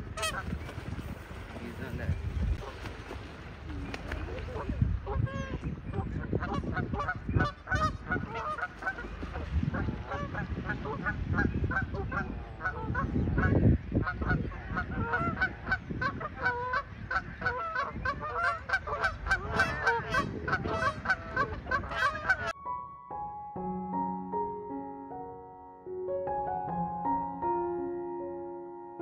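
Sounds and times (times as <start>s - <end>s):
geese honking: 0.0s - 0.6s, 4.3s - 22.6s.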